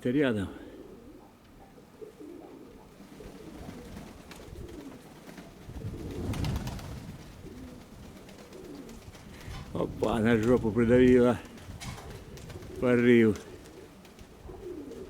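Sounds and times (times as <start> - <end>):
pigeons cooing: 0.4 - 15.0
wind rumbling on microphone: 3.2 - 15.0.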